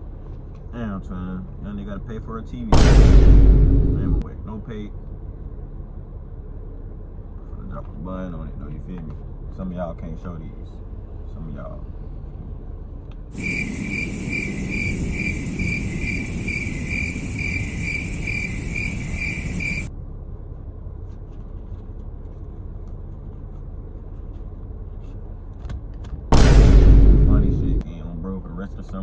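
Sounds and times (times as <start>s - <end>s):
low steady rumble: 0.0s - 29.0s
high insect-like chirp: 13.4s - 19.9s
hiss: 13.4s - 19.9s.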